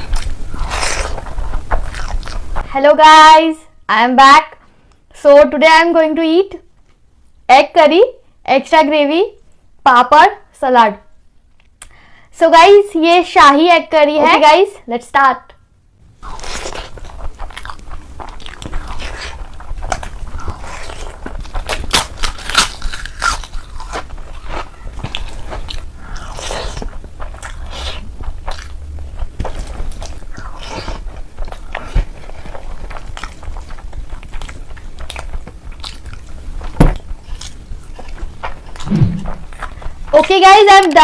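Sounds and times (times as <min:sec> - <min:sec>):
person crunching and chewing food: 0:00.0 - 0:02.7, 0:16.1 - 0:40.7.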